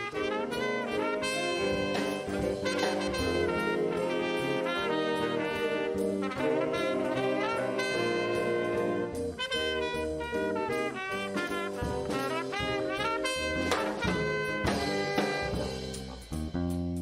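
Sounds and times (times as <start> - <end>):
horn section holding notes: 0.0 - 16.1
band playing music: 0.0 - 17.0.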